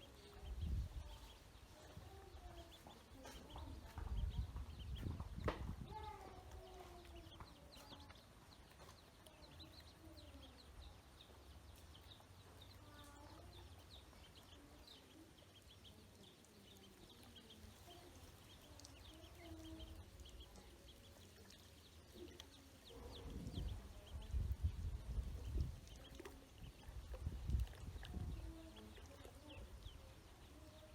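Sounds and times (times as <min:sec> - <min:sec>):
ducklings peeping: 0:00.0 - 0:30.9
low thumps: 0:03.6 - 0:06.1.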